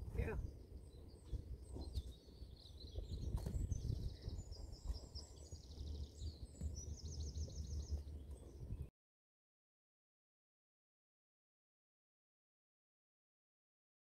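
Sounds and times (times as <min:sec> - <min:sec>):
small birds chirping: 0:00.0 - 0:08.9
wind rumble on microphone: 0:00.0 - 0:08.9.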